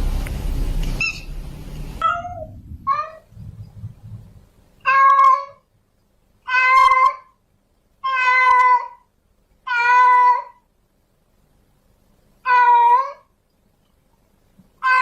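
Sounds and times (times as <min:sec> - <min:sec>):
cat meowing: 0:02.0 - 0:03.3, 0:04.8 - 0:05.7, 0:06.4 - 0:07.4, 0:08.0 - 0:09.1, 0:09.7 - 0:10.6, 0:12.4 - 0:13.3, 0:14.8 - 0:15.0.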